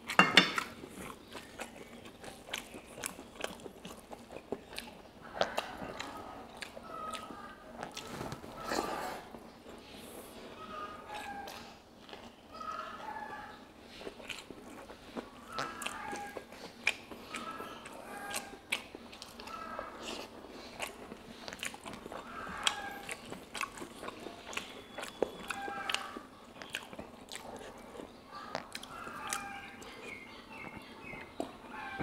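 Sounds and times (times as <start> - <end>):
person chewing with wet mouth clicks: 1.2 - 8.1, 14.0 - 19.5, 20.1 - 31.6.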